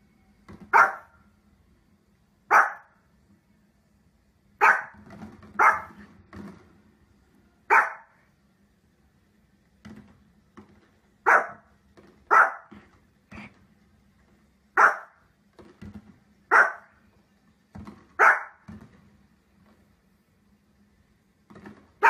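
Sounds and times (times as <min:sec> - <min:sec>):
small dog barking: 0:00.7 - 0:01.2, 0:02.5 - 0:03.0, 0:04.6 - 0:05.0, 0:05.6 - 0:06.0, 0:07.7 - 0:08.2, 0:11.2 - 0:11.7, 0:12.3 - 0:12.8, 0:14.8 - 0:15.2, 0:16.5 - 0:16.9, 0:18.2 - 0:18.6.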